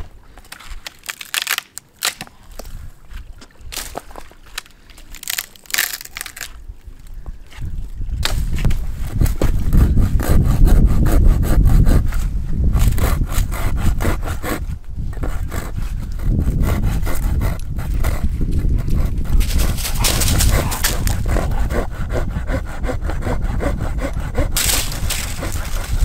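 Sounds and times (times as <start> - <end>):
scattered crunches: 0.3 - 2.8, 3.7 - 6.7, 19.4 - 21.4, 24.6 - 26.0
heavy deep rumble: 8.1 - 26.0.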